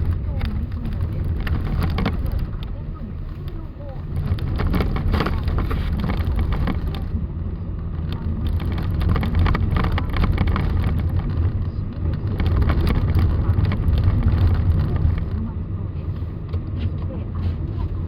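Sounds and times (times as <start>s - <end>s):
car engine and tyres rumbling: 0.0s - 18.0s
snow crackling under wheels: 0.0s - 18.0s.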